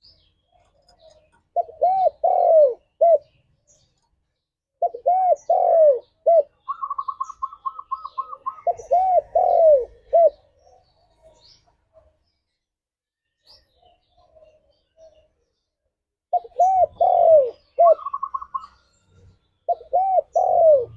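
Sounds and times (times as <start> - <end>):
faint high bird chirps: 0.0 - 20.9
dove cooing: 0.5 - 3.4, 4.8 - 12.1, 16.3 - 18.8, 19.7 - 20.9.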